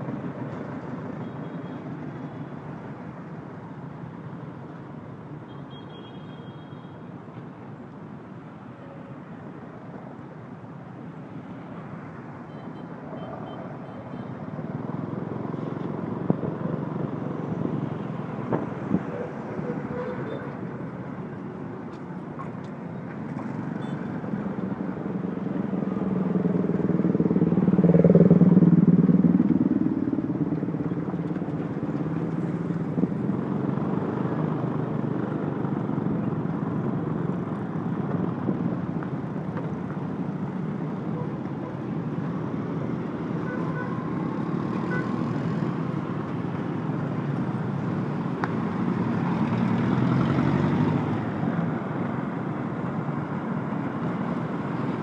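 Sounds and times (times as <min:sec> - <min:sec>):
road traffic: 0:00.0 - 0:55.0
vehicle passing close: 0:23.4 - 0:32.3.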